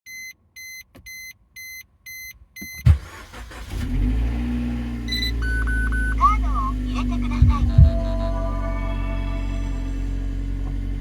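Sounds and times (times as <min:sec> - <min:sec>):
car engine starting and idling: 0:02.6 - 0:11.0
short beep: 0:05.1 - 0:06.3
dashboard chime beeping: 0:05.1 - 0:06.8.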